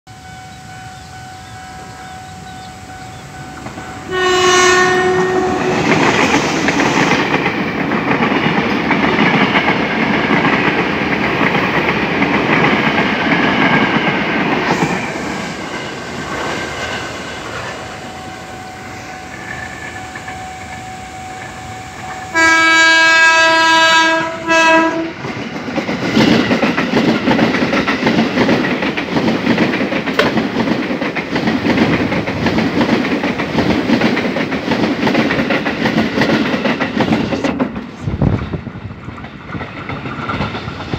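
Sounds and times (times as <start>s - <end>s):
train horn blasts: 0.1s - 6.1s, 17.8s - 25.2s
electric train whine: 0.1s - 40.9s
train wheels clattering over rail joints: 5.6s - 17.8s, 25.2s - 40.9s.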